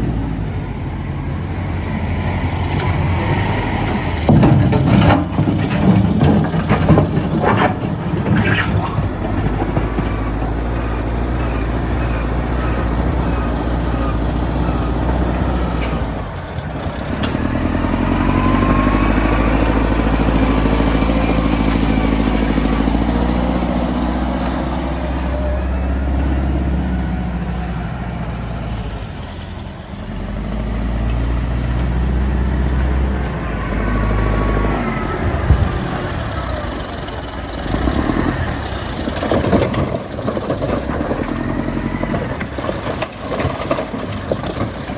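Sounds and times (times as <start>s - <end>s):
heavy diesel machinery running: 0.0s - 44.9s.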